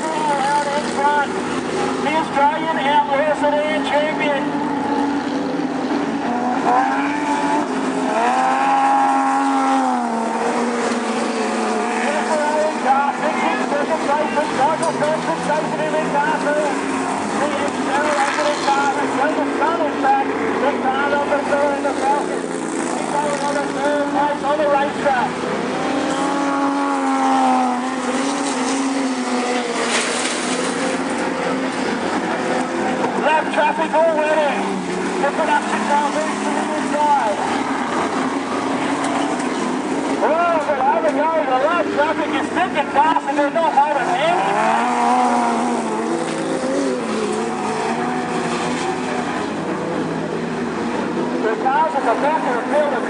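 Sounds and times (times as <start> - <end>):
race car engines running hard: 0.0 - 53.0
race car passing by: 0.0 - 53.0.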